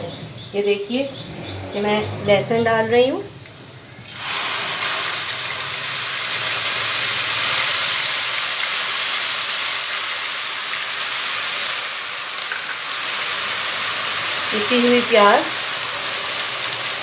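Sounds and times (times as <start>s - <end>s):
ghee sizzling in a pan: 3.6s - 17.0s.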